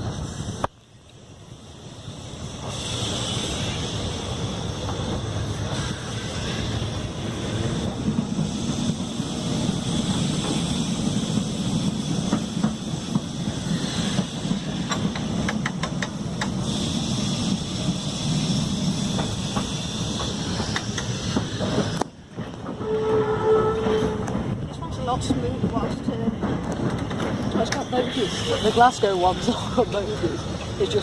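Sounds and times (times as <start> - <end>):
electric tram rumbling: 0.0 - 31.0
wheels clicking over rail joints: 7.0 - 31.0.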